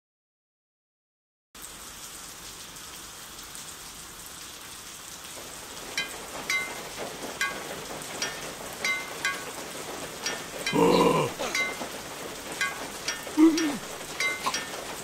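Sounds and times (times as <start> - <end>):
steady rain on hard surfaces: 1.6 - 15.0
high plinks of dripping drops: 6.0 - 6.8, 8.2 - 9.6, 12.6 - 14.7.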